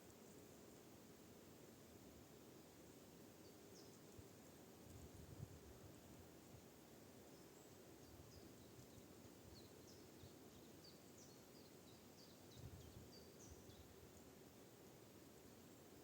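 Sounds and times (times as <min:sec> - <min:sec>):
small birds chirping: 0:03.4 - 0:04.1, 0:07.3 - 0:14.3.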